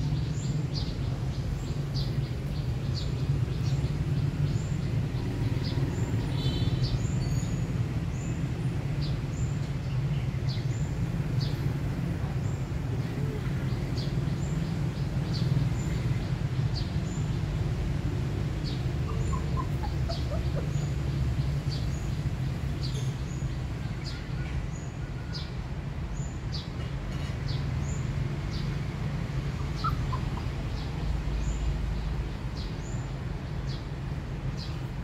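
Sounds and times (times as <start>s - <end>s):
bird chirping: 0.1s - 8.4s, 18.6s - 24.5s, 29.4s - 33.9s.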